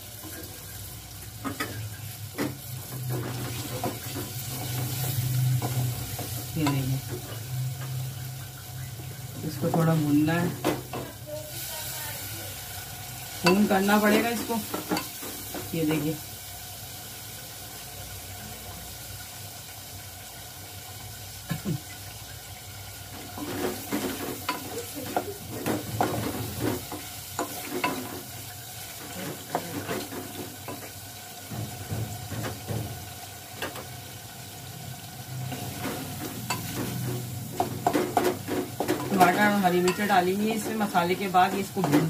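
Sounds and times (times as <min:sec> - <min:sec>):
meat sizzling in a pot: 0:00.0 - 0:42.0
wooden spoon scraping a pot: 0:23.2 - 0:31.0.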